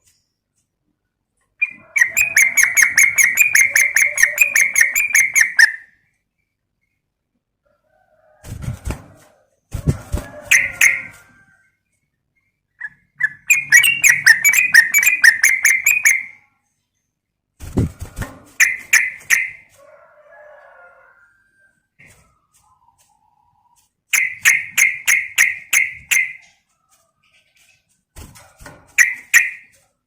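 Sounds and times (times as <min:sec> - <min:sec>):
bird calling in bright bursts: 0:01.6 - 0:05.9, 0:12.8 - 0:16.4, 0:18.6 - 0:19.6, 0:24.1 - 0:26.4, 0:29.0 - 0:29.7.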